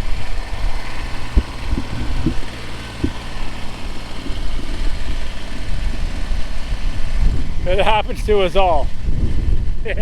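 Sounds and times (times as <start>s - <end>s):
diesel tractor engine idling: 0.0s - 9.8s
low thud: 1.3s - 3.6s.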